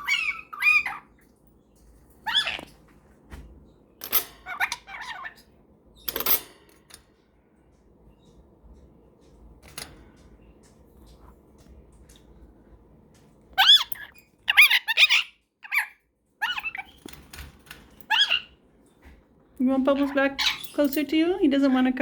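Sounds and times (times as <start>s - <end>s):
parrots chirping and squawking: 0.0s - 3.0s, 4.0s - 5.6s, 13.4s - 18.7s, 19.9s - 21.1s.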